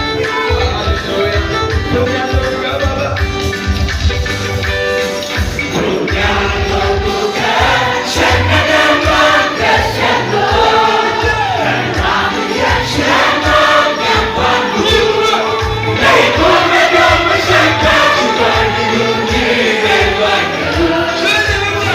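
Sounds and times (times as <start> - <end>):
band with steady beat: 0.0 - 21.9
choir singing gospel song: 5.6 - 21.9.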